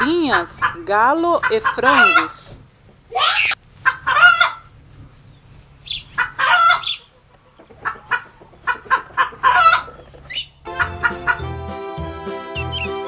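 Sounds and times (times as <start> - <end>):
chickens clucking: 0.0 - 11.5
chicken squawk: 1.4 - 4.7, 5.9 - 11.4.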